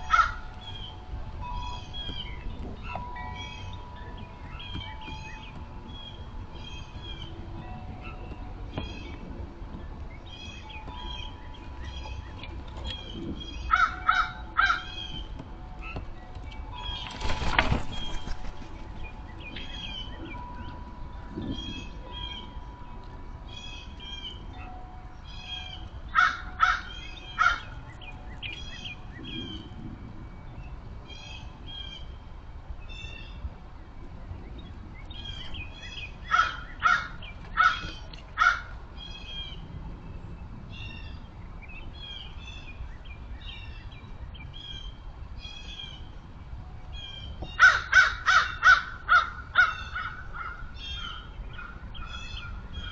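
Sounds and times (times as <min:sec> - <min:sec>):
songbird chirping: 0:00.0 - 0:52.9
crows cawing: 0:00.1 - 0:00.4, 0:13.7 - 0:15.0, 0:26.2 - 0:27.7, 0:36.3 - 0:38.7, 0:47.6 - 0:51.2.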